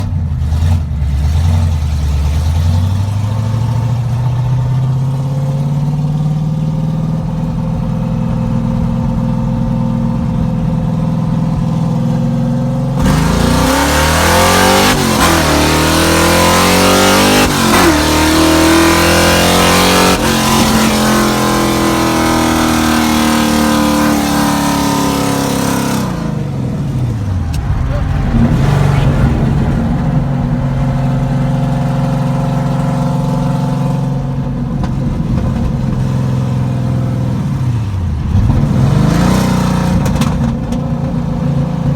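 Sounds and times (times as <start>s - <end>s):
car engine accelerating: 0.0s - 41.9s
rushing noise: 24.7s - 33.5s.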